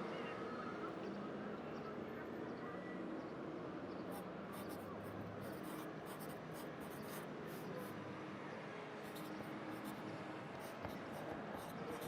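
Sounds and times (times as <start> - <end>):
city traffic noise: 0.0 - 12.0
pencil scratching on paper: 4.5 - 4.8, 5.4 - 8.0, 9.0 - 10.0, 10.6 - 12.0.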